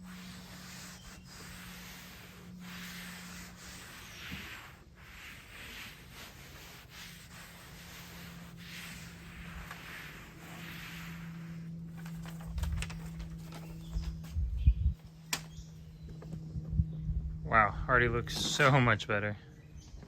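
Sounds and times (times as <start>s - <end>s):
hands rubbing carpet liner: 0.0s - 14.4s
steady low hum: 0.0s - 20.0s.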